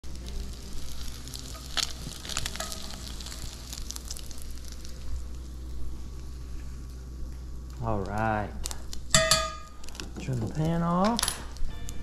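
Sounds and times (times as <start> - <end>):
crab cakes sizzling in a skillet: 0.0 - 7.1.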